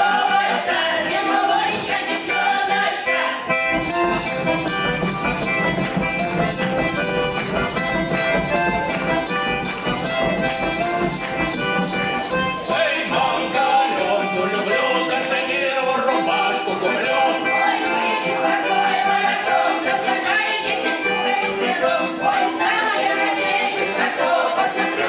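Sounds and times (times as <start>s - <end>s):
folk ensemble instrumental chords: 0.0s - 25.0s
wavering singing voices: 12.7s - 25.0s.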